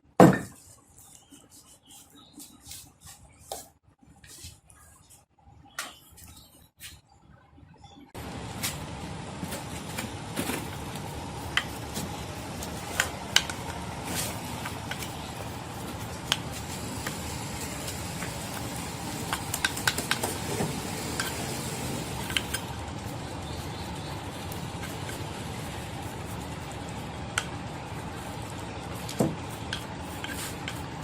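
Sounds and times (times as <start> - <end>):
steady background hiss: 8.2 - 31.0.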